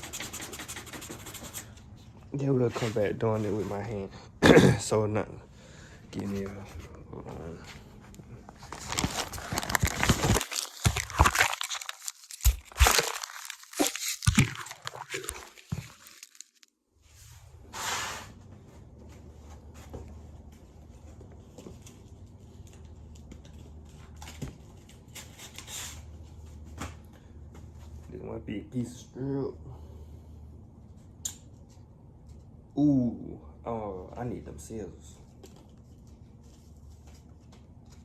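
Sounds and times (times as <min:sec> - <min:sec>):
sandpaper crinkling and tearing: 0:08.6 - 0:16.7.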